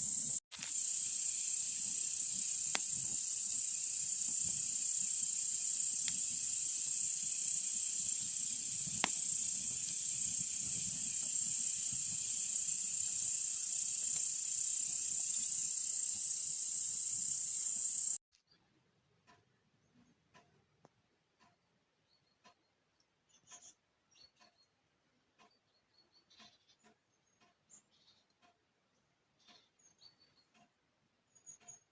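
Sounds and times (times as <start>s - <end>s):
high-pitched insect chirring: 0.0s - 18.2s
campfire crackling and popping: 0.2s - 15.8s.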